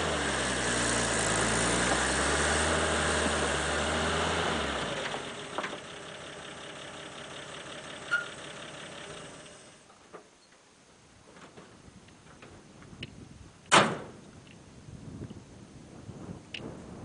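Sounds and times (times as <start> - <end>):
truck engine running: 0.0 - 9.8.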